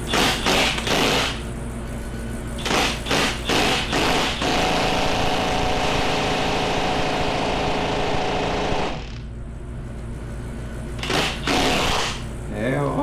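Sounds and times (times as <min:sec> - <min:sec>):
impact wrench hammering: 0:00.0 - 0:01.4, 0:02.6 - 0:07.8, 0:11.0 - 0:12.3.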